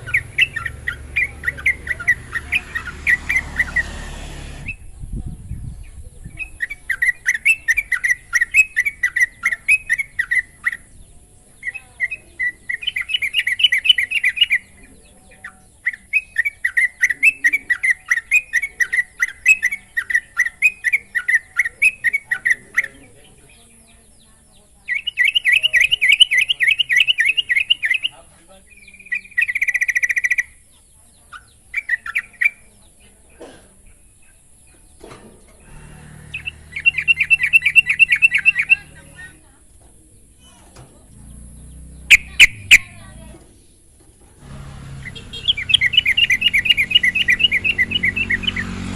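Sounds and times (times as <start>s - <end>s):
bird singing bubbling notes: 36.4s - 38.9s, 41.5s - 43.0s, 45.4s - 48.7s.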